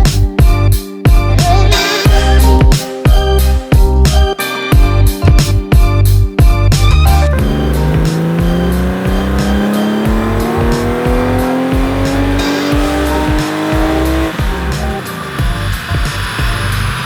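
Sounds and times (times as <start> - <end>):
background music with beat: 0.0 - 17.0
car engine accelerating: 6.6 - 17.0.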